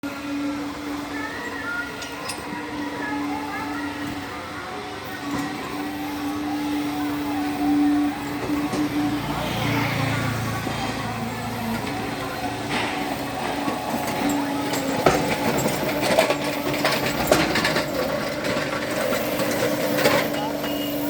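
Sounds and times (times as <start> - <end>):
electric motor and hydraulics humming: 0.0 - 21.0.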